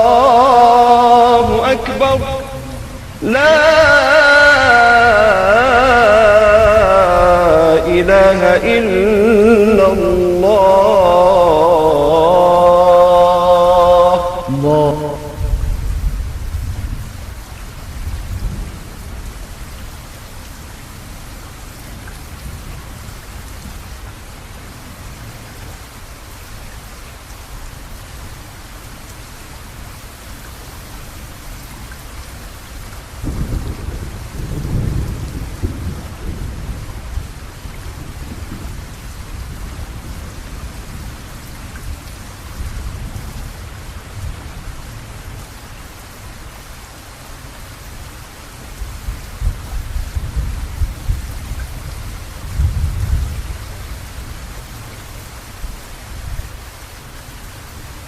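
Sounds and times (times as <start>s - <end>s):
thunder rumbling: 0.0s - 19.8s, 33.2s - 41.2s
rain falling: 0.0s - 58.0s.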